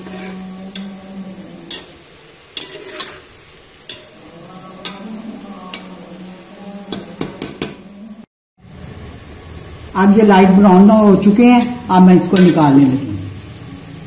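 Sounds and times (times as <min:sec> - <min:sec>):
vegetables sizzling in oil: 0:00.0 - 0:14.0
metal spatula clinking on pot: 0:02.6 - 0:03.2.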